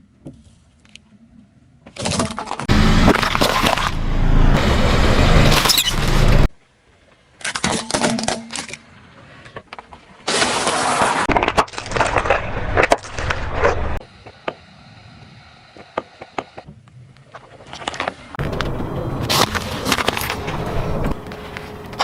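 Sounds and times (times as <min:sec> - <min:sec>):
tyre crushing brittle objects: 0:02.0 - 0:04.0, 0:10.3 - 0:13.9.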